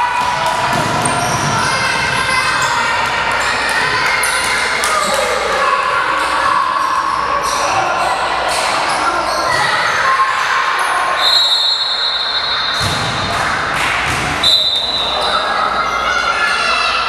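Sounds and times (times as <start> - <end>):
hubbub of gym hall: 0.0 - 17.0
basketball bouncing on court: 0.2 - 2.7.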